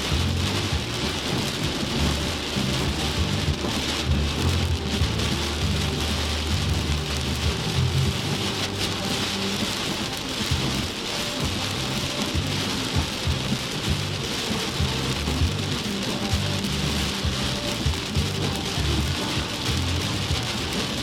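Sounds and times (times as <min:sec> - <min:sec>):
low rumble: 0:00.0 - 0:14.2
heavy rain pouring: 0:00.0 - 0:21.0.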